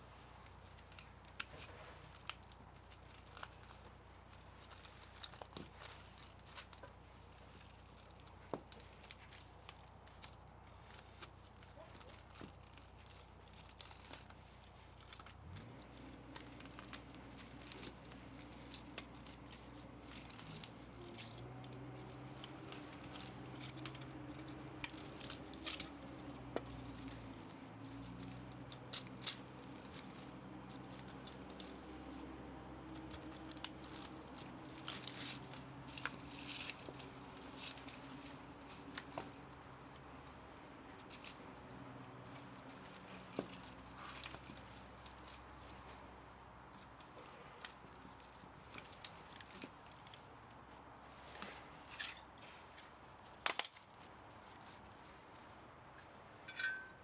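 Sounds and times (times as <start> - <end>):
hand tools clicking on metal: 56.5 - 57.0.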